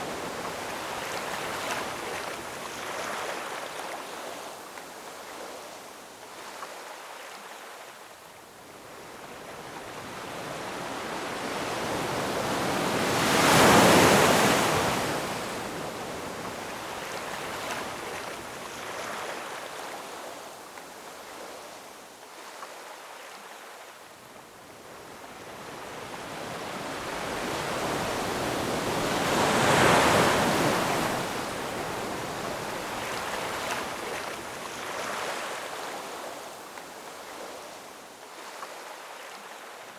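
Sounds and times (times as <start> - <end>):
ocean waves crashing on rocks: 11.0 - 15.7, 26.2 - 36.0.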